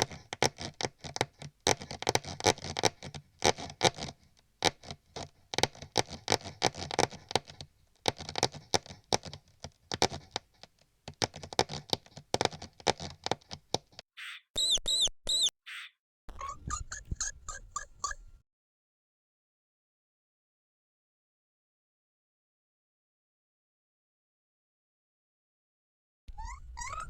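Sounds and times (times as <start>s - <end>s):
mouse scratching and scurrying: 0.0s - 14.0s
mouse squeaks: 14.2s - 18.4s, 26.3s - 27.0s.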